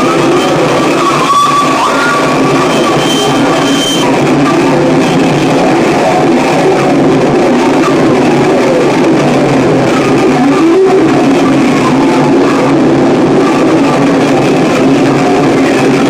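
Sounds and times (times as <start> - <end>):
distorted noise wall: 0.0 - 16.0
sliding squeals: 0.1 - 5.4.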